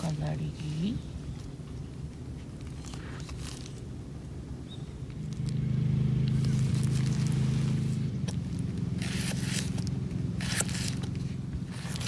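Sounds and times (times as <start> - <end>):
low engine-like hum: 3.2 - 12.0.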